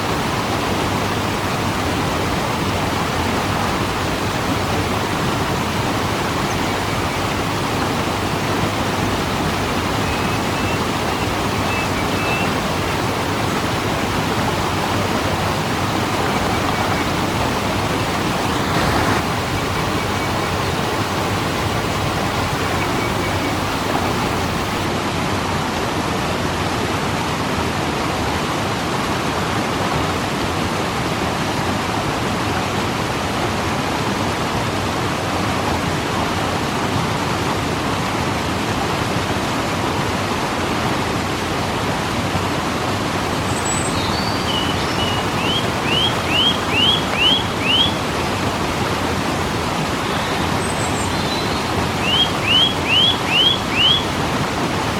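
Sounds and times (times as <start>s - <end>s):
waterfall rushing: 0.0s - 25.2s, 42.4s - 54.9s
bird chirping: 10.0s - 24.9s, 43.3s - 48.7s, 49.6s - 54.2s.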